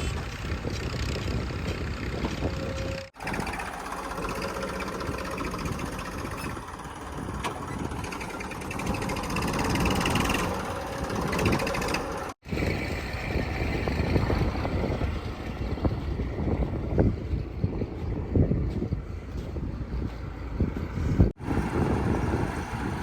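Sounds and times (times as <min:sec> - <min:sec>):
heavy machinery diesel engines: 0:00.0 - 0:23.0.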